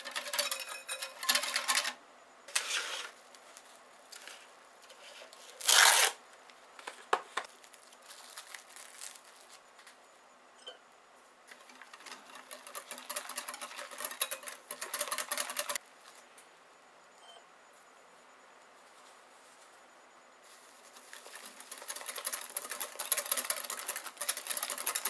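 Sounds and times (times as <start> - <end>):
whisk beating custard in bowl: 11.6 - 15.8.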